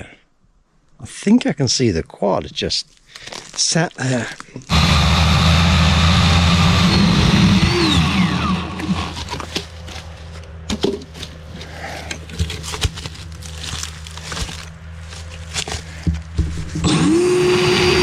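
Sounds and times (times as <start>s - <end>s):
chainsaw running and idling: 4.7s - 18.0s.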